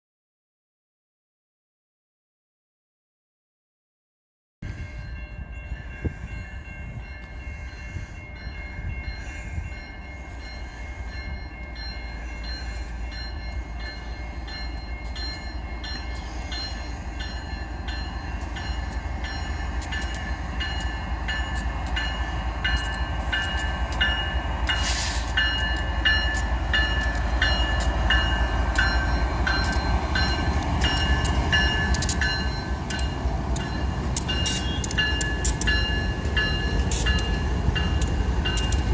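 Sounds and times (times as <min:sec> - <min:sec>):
freight train rumble: 0:04.6 - 0:38.9
steady high tones: 0:04.8 - 0:38.9.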